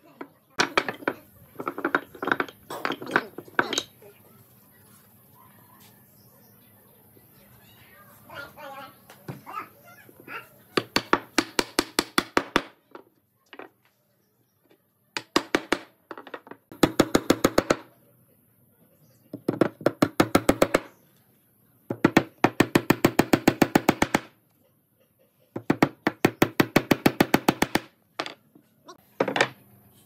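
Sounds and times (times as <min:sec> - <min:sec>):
hammer tapping nails into wood: 0:25.6 - 0:28.4.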